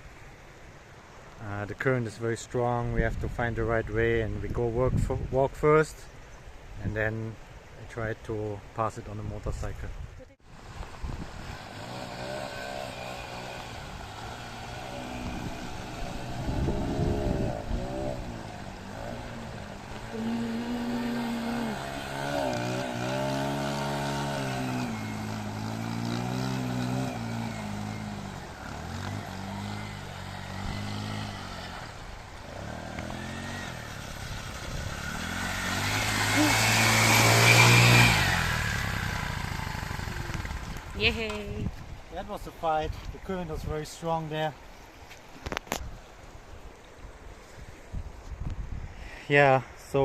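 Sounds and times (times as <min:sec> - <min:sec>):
rushing water: 0:10.4 - 0:48.4
motorcycle engine revving: 0:10.6 - 0:41.4.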